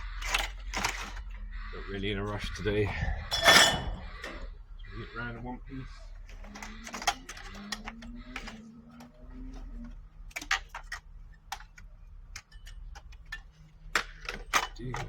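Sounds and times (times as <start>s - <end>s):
low steady hum: 0.0s - 15.0s
scrap metal clinking: 3.3s - 4.1s.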